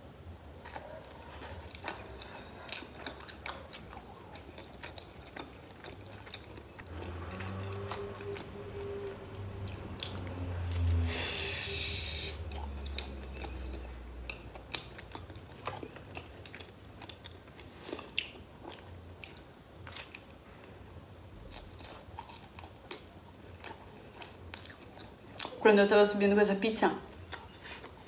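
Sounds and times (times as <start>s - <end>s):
chewing with clicks: 0.6s - 11.0s, 12.5s - 20.8s, 21.4s - 25.6s, 27.1s - 28.0s.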